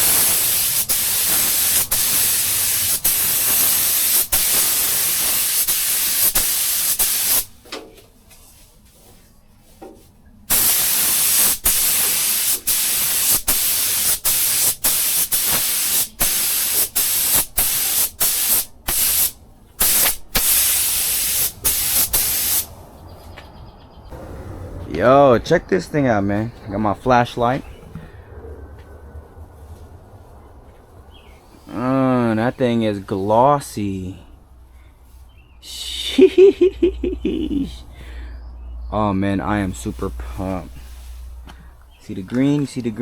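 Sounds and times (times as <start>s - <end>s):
paint sprayer hissing: 0.0s - 7.6s, 10.5s - 22.8s.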